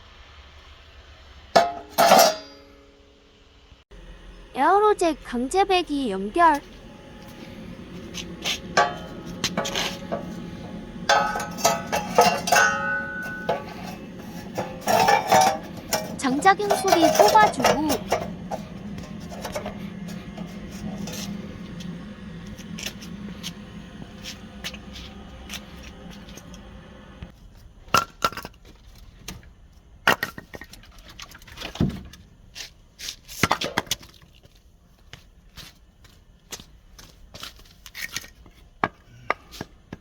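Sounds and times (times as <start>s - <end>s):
low steady hum: 0.8s - 27.4s
metal stove parts clinking: 1.6s - 2.8s, 7.8s - 22.0s.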